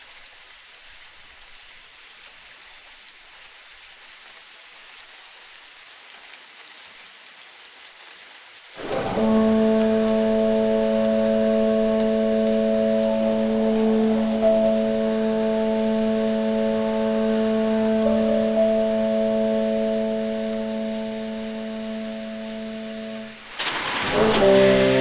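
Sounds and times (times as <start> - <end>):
soft steady hiss: 0.0 - 25.0
horn-like chord: 8.8 - 25.0.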